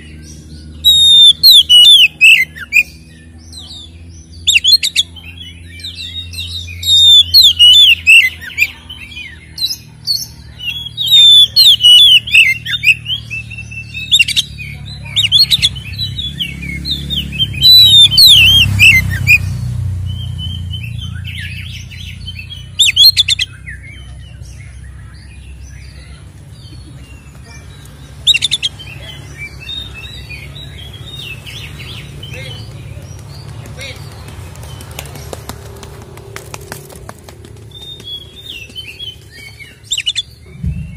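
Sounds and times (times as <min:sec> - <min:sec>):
bird singing whistles and rasps: 0:00.0 - 0:26.2, 0:37.7 - 0:40.9
low steady rumble: 0:19.4 - 0:40.9.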